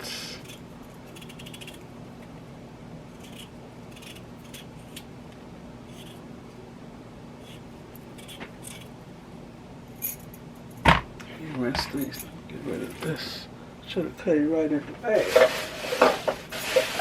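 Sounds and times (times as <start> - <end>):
low steady hum: 0.0 - 17.0
knife cutting potatoes: 3.1 - 5.1, 5.8 - 6.2.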